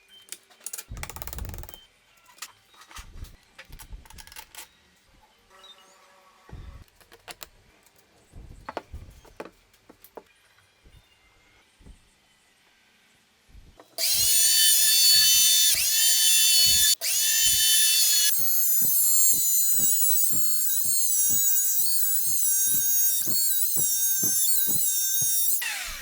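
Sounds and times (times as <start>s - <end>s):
electric motor whining: 14.0s - 26.0s.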